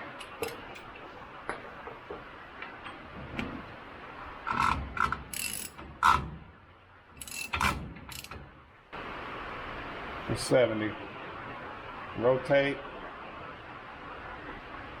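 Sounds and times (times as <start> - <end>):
ratchet wrench clicking: 4.5 - 6.2, 7.2 - 8.4.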